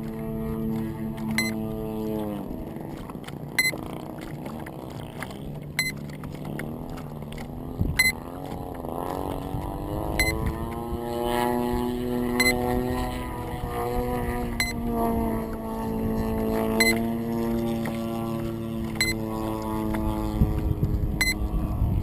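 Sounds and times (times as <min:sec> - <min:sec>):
electric motor and propeller: 0:00.0 - 0:22.0.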